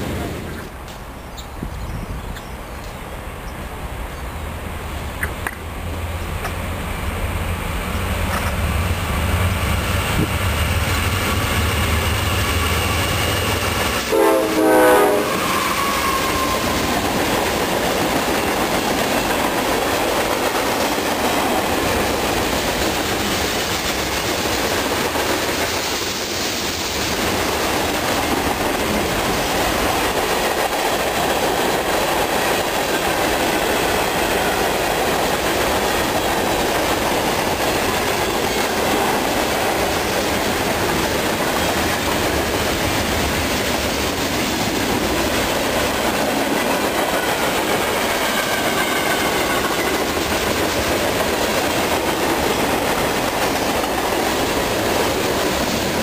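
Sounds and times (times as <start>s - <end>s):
diesel locomotives rumbling: 0.0s - 56.0s
wheels clattering on rail: 7.8s - 14.8s
train horn blast: 14.0s - 16.8s.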